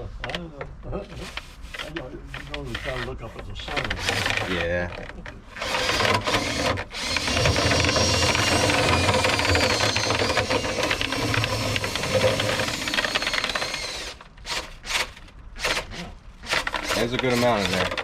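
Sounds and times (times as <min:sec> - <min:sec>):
power drill spinning brush rattle: 0:05.6 - 0:15.8.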